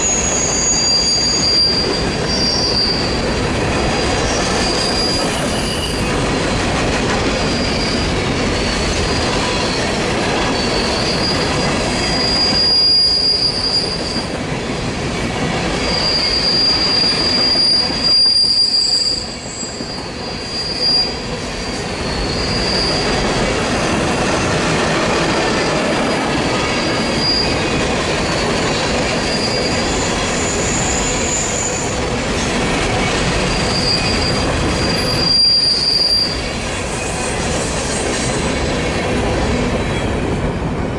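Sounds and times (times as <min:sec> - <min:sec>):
wheel flanges squealing: 0:00.0 - 0:03.3, 0:03.9 - 0:06.2, 0:07.3 - 0:14.3, 0:15.7 - 0:23.5, 0:26.6 - 0:32.0, 0:32.9 - 0:38.1
train wheels clattering on rail: 0:00.0 - 0:40.9.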